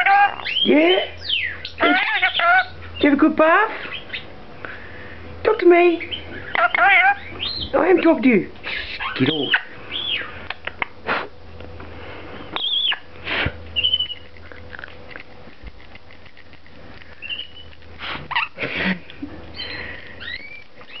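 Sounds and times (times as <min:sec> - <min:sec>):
parrot squawks: 0:00.0 - 0:02.8, 0:06.0 - 0:07.7, 0:08.9 - 0:10.7, 0:12.6 - 0:13.1, 0:13.8 - 0:14.2, 0:18.3 - 0:18.6
parrots chirping and whistling: 0:00.0 - 0:03.0, 0:03.8 - 0:04.3, 0:06.0 - 0:07.8, 0:08.7 - 0:10.8, 0:12.4 - 0:13.1, 0:13.7 - 0:14.6, 0:17.1 - 0:18.6, 0:19.5 - 0:21.0.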